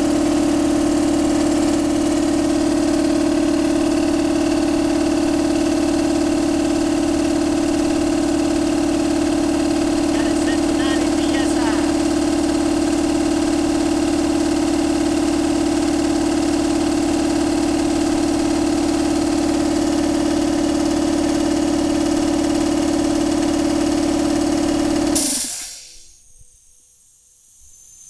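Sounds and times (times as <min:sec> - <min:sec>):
electric air compressor humming: 0:00.0 - 0:26.3
air hiss: 0:25.2 - 0:26.4.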